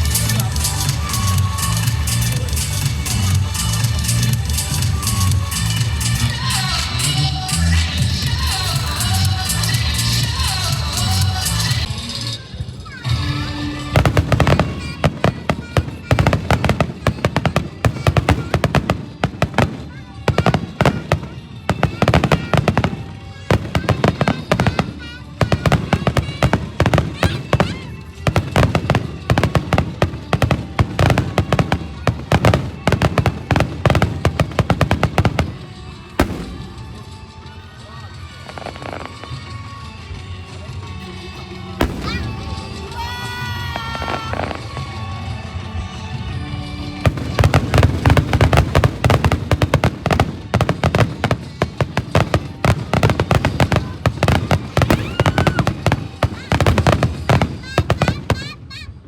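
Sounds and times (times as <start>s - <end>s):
fireworks bangs: 0.0s - 37.6s, 41.8s - 45.3s, 47.0s - 59.0s
music: 0.0s - 59.0s
deep fireworks booms: 12.6s - 37.4s, 41.8s - 44.8s.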